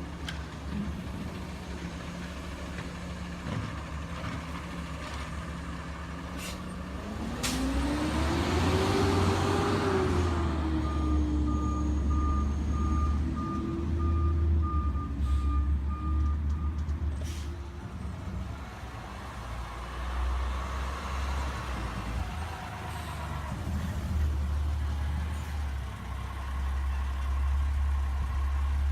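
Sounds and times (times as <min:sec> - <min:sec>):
garbage truck engine revving: 0:06.4 - 0:14.0
reversing alarm beeping: 0:10.8 - 0:16.8.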